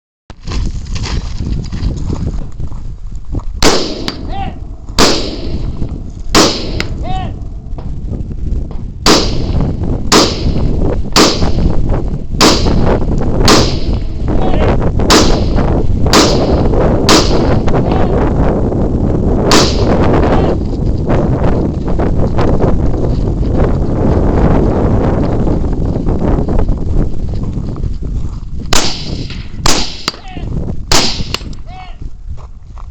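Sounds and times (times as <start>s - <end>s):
rifle shots: 3.6s - 4.3s, 5.0s - 7.0s, 9.0s - 11.7s, 12.4s - 14.2s, 15.1s - 17.6s, 19.5s - 20.0s, 28.7s - 30.2s, 30.9s - 31.5s.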